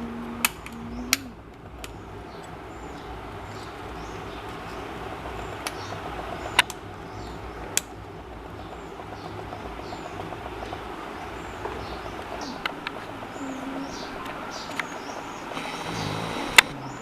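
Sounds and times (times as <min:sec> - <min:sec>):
low hum: 0:00.0 - 0:17.0
sharp clicks: 0:14.2 - 0:17.0.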